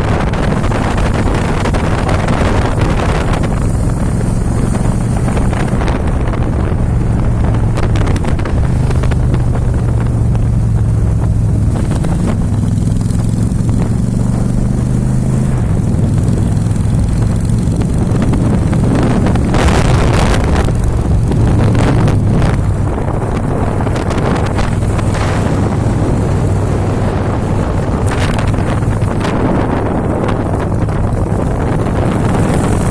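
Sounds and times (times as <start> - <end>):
motorcycle engine running: 0.0 - 32.9
wind buffeting microphone: 0.0 - 32.9.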